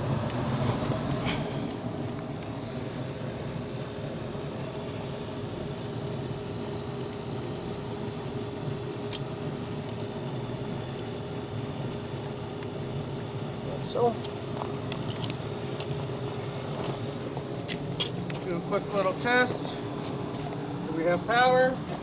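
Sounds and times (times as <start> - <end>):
machinery humming: 0.0 - 22.0.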